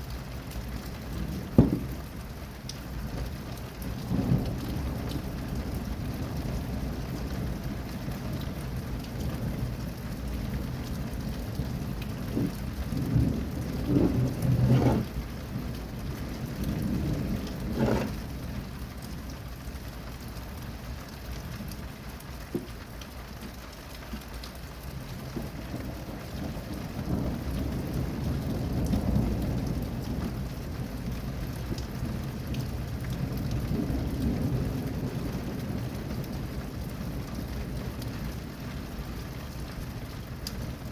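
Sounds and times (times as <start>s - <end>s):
steady rain falling: 0.0s - 40.9s
rolling thunder: 1.1s - 2.3s, 3.8s - 18.7s, 25.0s - 39.0s.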